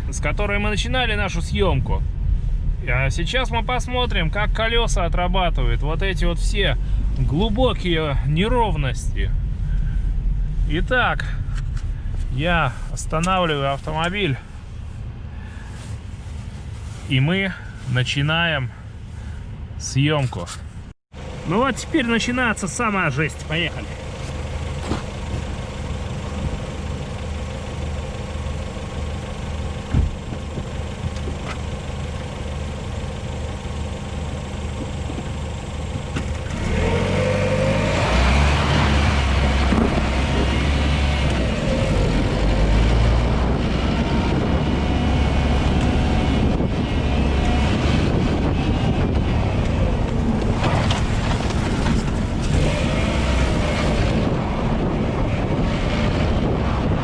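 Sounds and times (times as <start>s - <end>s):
car engine revving: 21.2s - 57.0s
tyres rumbling over dirt road: 21.2s - 57.0s.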